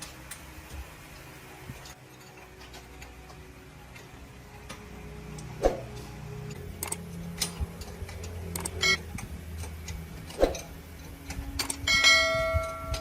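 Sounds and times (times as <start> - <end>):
low steady hum: 0.0 - 13.0
metal tools clinking and knocking: 1.2 - 13.0
ringing metal strike: 11.9 - 13.0.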